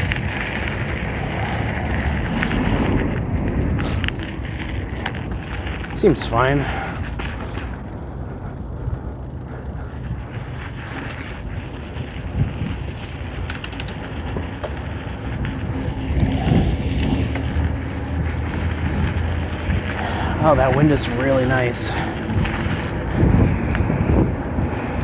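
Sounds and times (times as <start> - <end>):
wind on microphone: 0.0 - 6.0, 10.1 - 13.8, 15.2 - 20.6, 21.6 - 25.0
bike chain and frame rattle: 0.0 - 25.0
bike tyres on dirt: 0.0 - 25.0
fast high ticks: 7.0 - 14.1.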